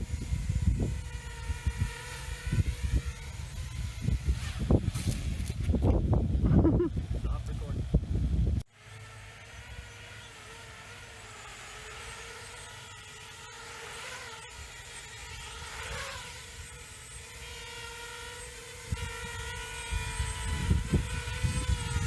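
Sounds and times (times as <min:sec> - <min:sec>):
wind rumble on microphone: 0:00.0 - 0:08.6, 0:18.8 - 0:22.0
drone propellers buzzing: 0:00.0 - 0:22.0.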